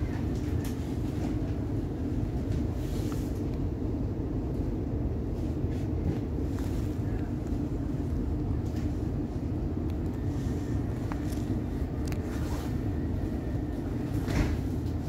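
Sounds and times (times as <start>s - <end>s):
train equipment hum: 0.0s - 15.0s.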